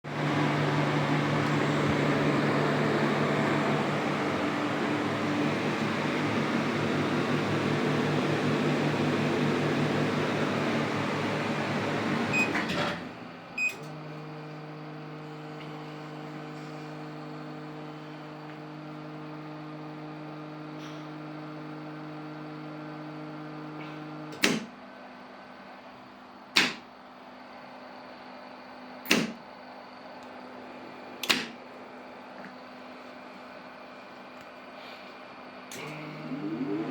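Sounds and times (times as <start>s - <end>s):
electrical hum: 0.1s - 19.5s.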